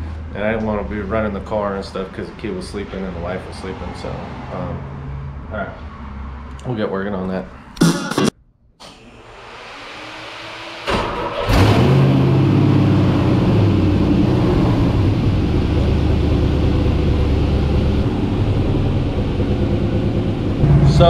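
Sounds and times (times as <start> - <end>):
engine cranking and idling: 10.9 - 12.0.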